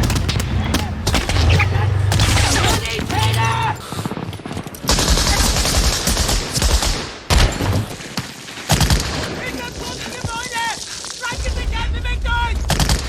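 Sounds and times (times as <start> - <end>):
voices shouting: 0.0 - 3.9
rapid automatic gunfire: 4.8 - 7.2, 12.7 - 13.0.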